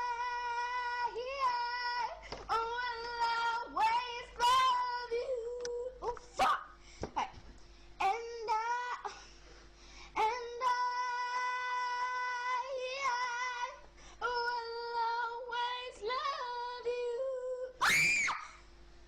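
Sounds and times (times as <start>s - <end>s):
high-pitched voice singing: 0.0s - 6.5s
loud cry: 17.8s - 18.6s.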